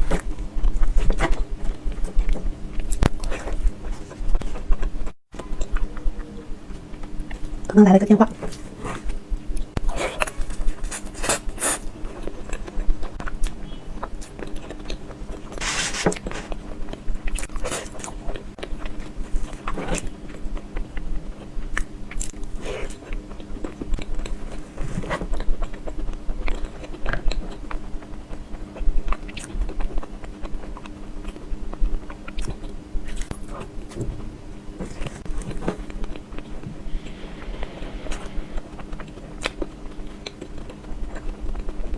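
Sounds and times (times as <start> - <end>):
faint steady hum: 0.0 - 41.9
biting and chewing: 8.5 - 36.7, 37.4 - 41.9.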